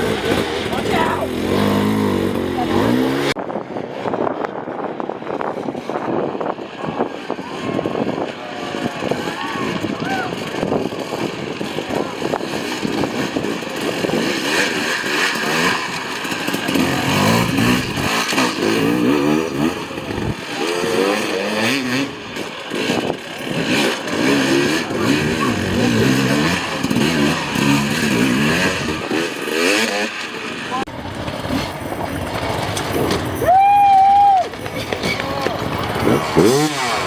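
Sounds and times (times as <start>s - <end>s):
dirt bike engine revving: 0.0s - 3.5s, 5.6s - 33.4s, 34.5s - 37.0s.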